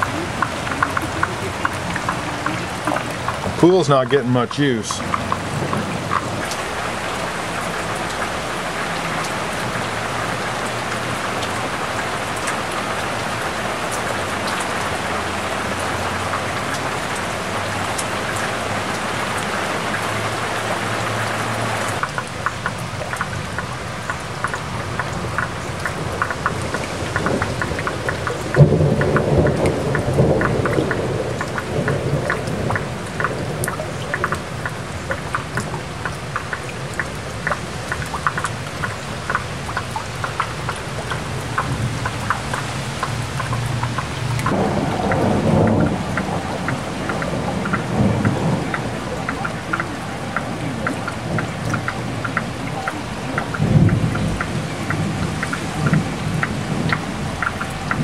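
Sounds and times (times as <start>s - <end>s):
thunder rumbling: 0.0s - 13.0s, 24.5s - 37.0s, 43.4s - 58.0s
heavy rain on vinyl cover: 0.0s - 58.0s
water drops pattering: 0.0s - 58.0s.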